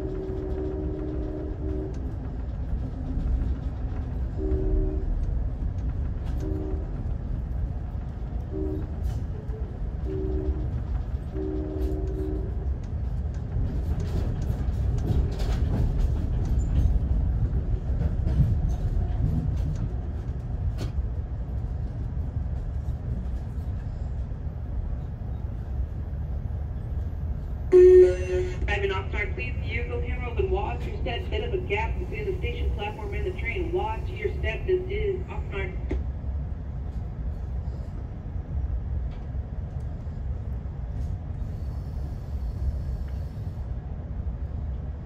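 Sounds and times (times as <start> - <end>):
faint train horn blasts: 0.0 - 2.2, 4.3 - 5.4, 6.2 - 7.2, 8.4 - 12.7, 27.7 - 29.0
train rumbling on rails: 0.0 - 45.0.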